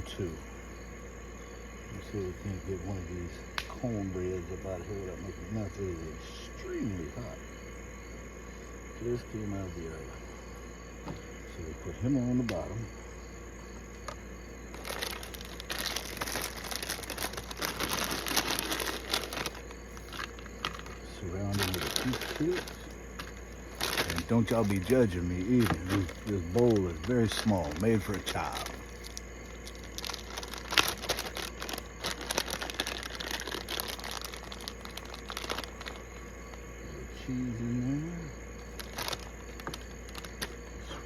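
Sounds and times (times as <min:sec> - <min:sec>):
chips rustling into bowl: 0:14.7 - 0:36.1
chip bag crinkling: 0:14.7 - 0:36.3, 0:38.6 - 0:40.7.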